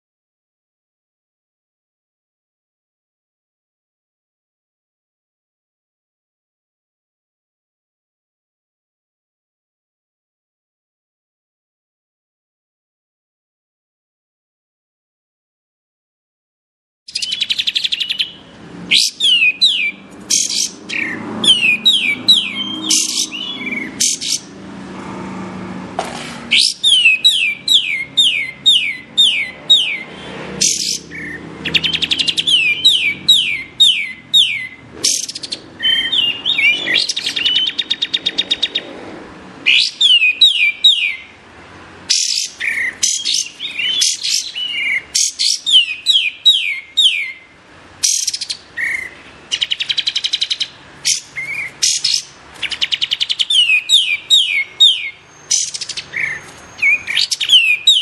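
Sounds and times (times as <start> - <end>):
bird singing whistled notes: 17.1 - 24.5, 26.5 - 38.9, 39.7 - 41.3, 42.1 - 58.0.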